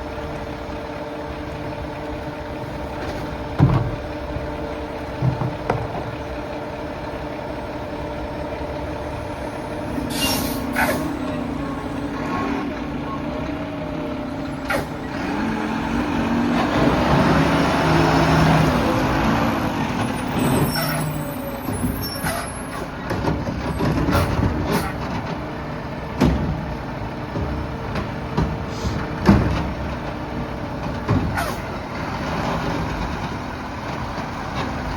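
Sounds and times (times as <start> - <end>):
garbage truck diesel engine: 0.0 - 34.9
sharp knocks and clanks: 26.2 - 30.1.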